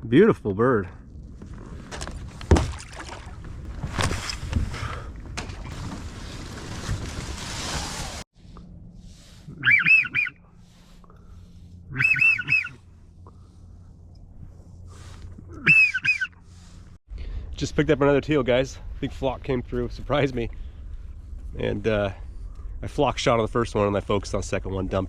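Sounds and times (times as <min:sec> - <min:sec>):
duck whistling: 0:09.5 - 0:10.5, 0:11.9 - 0:12.9, 0:15.6 - 0:16.4.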